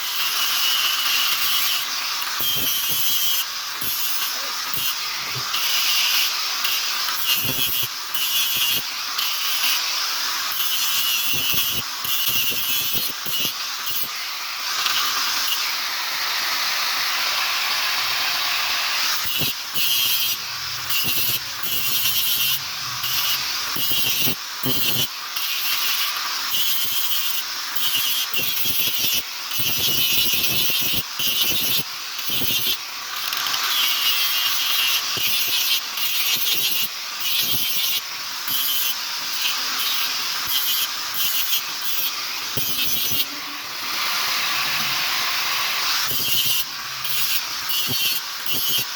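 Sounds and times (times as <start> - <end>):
hand tool rasping against steel: 19.1 - 26.0, 33.4 - 43.4, 45.8 - 48.9.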